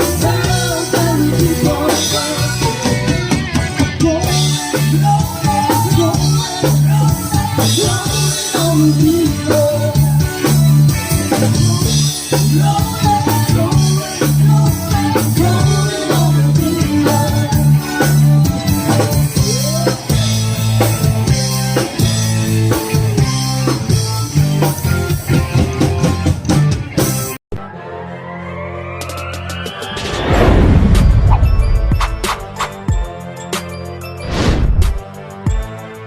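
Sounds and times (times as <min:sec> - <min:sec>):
band playing upbeat rock: 0:00.0 - 0:27.4
rising electronic sweep: 0:28.2 - 0:32.8.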